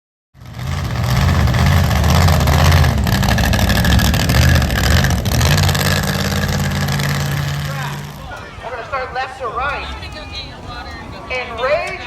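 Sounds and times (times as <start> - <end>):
truck engine running loudly: 0.4 - 8.4.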